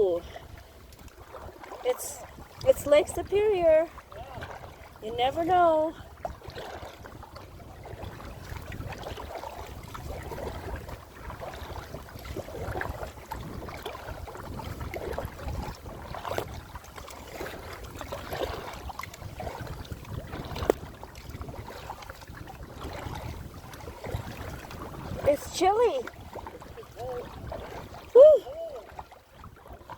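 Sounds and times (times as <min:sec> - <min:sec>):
paddle splashing in water: 0:00.0 - 0:29.9
wind on microphone: 0:00.0 - 0:29.9.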